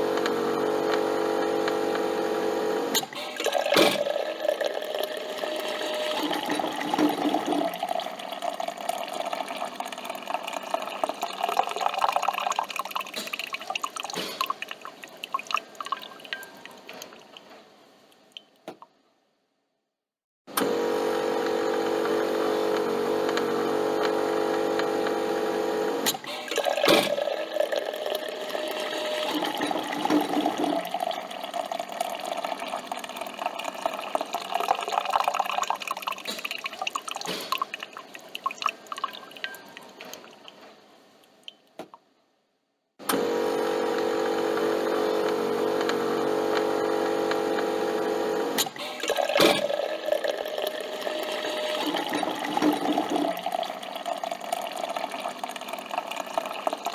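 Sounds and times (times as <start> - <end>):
coffee machine motor hum: 0.0 - 3.0, 20.6 - 26.1, 43.1 - 50.0, 50.7 - 54.0.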